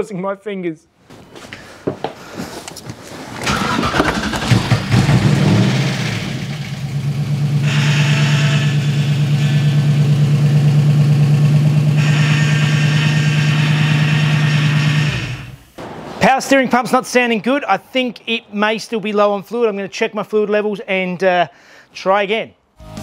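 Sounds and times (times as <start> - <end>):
power steering pump whine: 3.4 - 15.7
engine starting and idling: 3.4 - 15.8.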